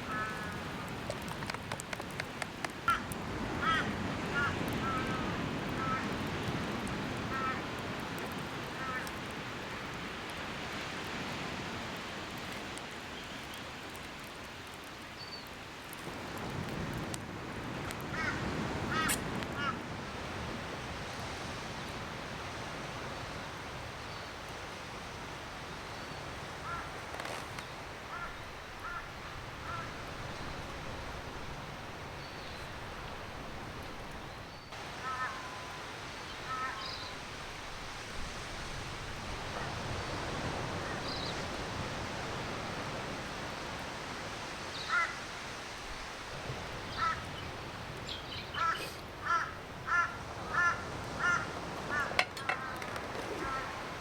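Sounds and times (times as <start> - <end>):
birds calling harshly: 46.9 - 54.0.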